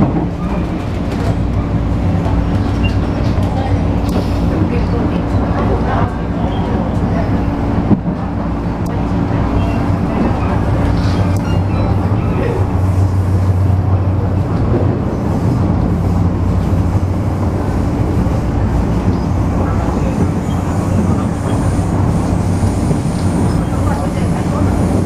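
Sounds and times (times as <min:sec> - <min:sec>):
train interior low hum: 0:00.0 - 0:25.0
wheel-on-rail noise: 0:00.0 - 0:25.0.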